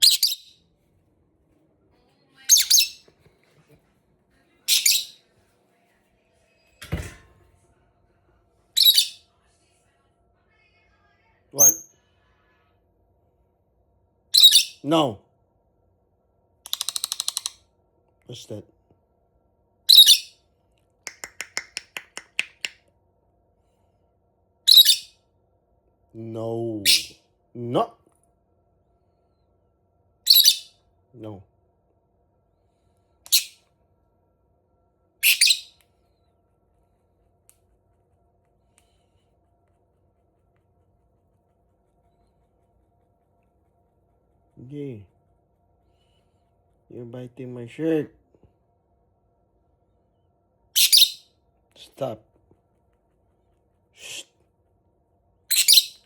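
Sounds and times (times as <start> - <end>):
parrot calls: 0.0 - 0.5, 2.4 - 3.0, 4.7 - 5.2, 8.8 - 9.2, 14.4 - 14.8, 19.9 - 20.3, 24.7 - 25.1, 35.2 - 35.8, 50.8 - 51.2, 55.5 - 56.0
parrot clicking: 16.7 - 17.6, 21.1 - 22.8.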